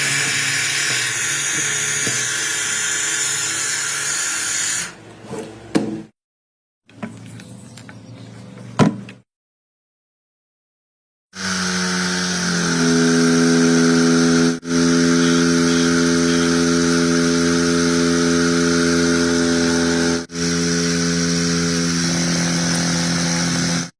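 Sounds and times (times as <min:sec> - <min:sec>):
water pump motor humming: 0:00.0 - 0:04.0, 0:11.4 - 0:23.9.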